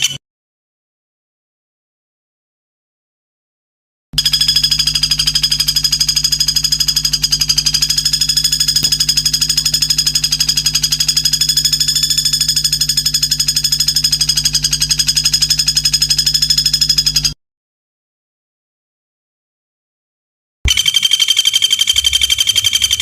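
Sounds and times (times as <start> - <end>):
high-pitched bird trill: 20.7 - 23.0.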